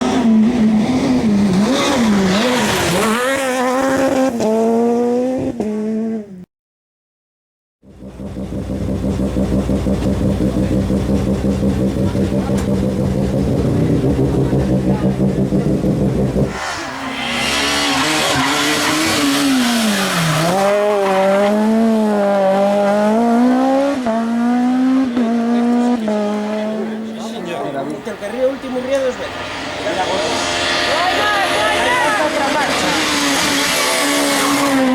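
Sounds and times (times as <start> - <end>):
rally car engine at high revs: 0.0 - 6.4, 7.9 - 34.9.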